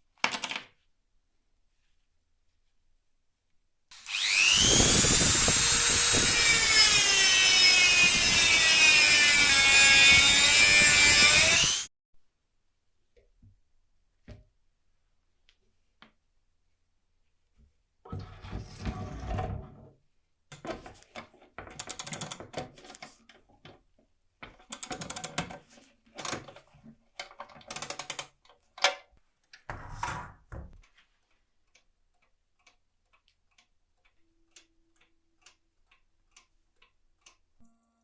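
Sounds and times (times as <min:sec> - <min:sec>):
clock winding ratchet clicks: 0:21.8 - 0:22.4, 0:24.6 - 0:25.5, 0:26.2 - 0:26.4, 0:27.6 - 0:28.4
clock ticking faintly: 0:30.8 - 0:37.8.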